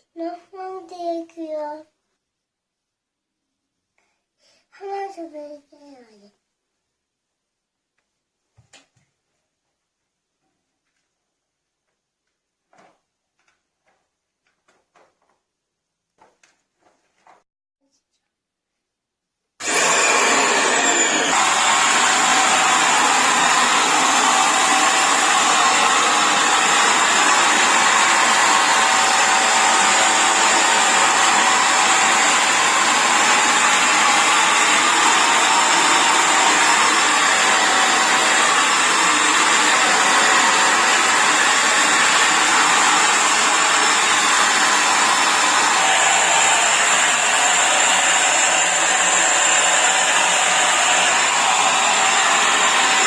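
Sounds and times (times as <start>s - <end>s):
vacuum cleaner running: 19.6s - 53.0s.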